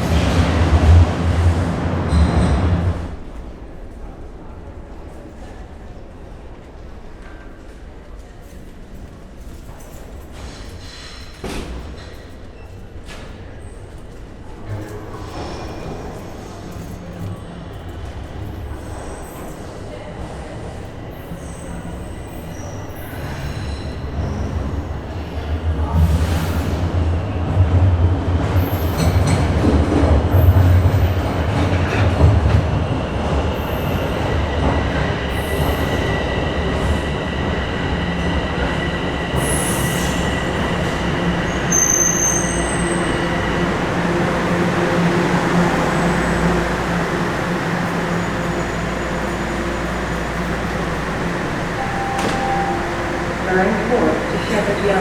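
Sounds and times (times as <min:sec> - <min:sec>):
subway train rumbling: 0:00.0 - 0:55.0
wheel squeal: 0:39.4 - 0:43.6.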